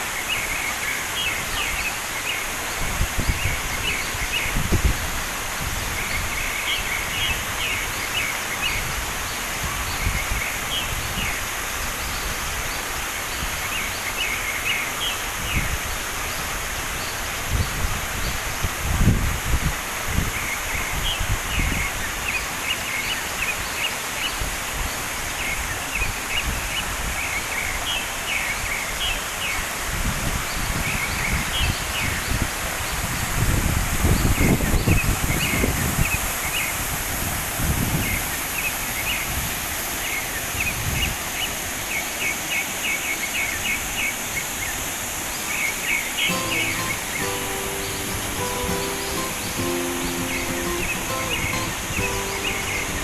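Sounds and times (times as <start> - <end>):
wind buffeting microphone: 2.7 - 6.5, 17.4 - 22.0, 29.9 - 38.3
steady hiss: 45.1 - 53.0
bird chirping: 46.2 - 53.0.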